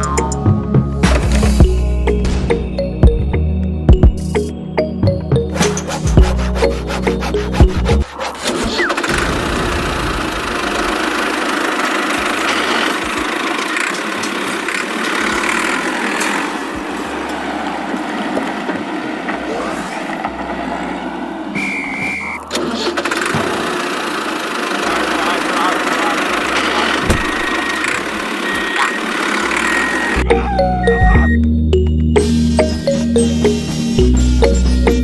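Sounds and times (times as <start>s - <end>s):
small motor running: 8.7s - 19.6s, 22.5s - 30.2s
brief high tone: 29.6s - 31.4s.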